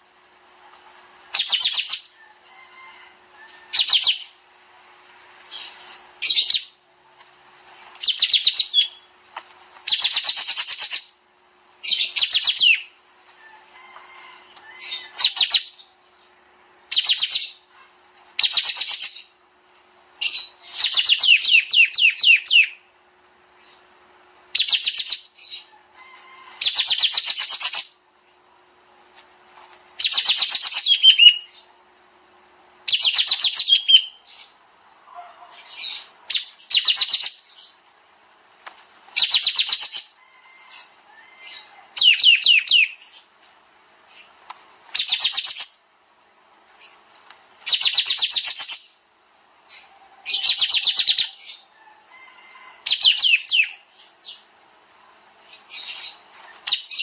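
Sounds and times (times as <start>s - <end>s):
bird chattering song: 1.3s - 2.2s, 3.7s - 4.4s, 5.5s - 6.8s, 8.0s - 9.1s, 9.8s - 13.0s, 14.7s - 17.8s, 18.4s - 19.4s, 20.2s - 22.9s, 23.6s - 31.8s, 32.8s - 34.6s, 35.2s - 37.8s, 39.2s - 43.4s, 44.1s - 45.9s, 47.6s - 49.1s, 49.7s - 51.7s, 52.8s - 54.5s, 55.4s - 57.0s.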